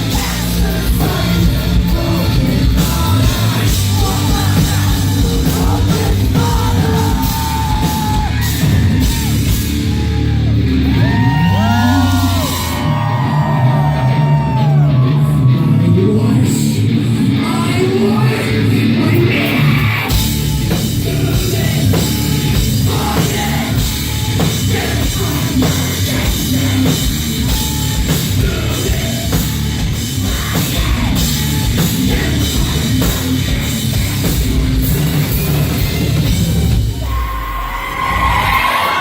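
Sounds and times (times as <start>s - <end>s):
driving drum kit: 0.0s - 39.0s
heavy guitars: 0.0s - 39.0s
heavy rock band playing: 0.0s - 39.0s
sung or yelled vocals: 0.0s - 39.0s.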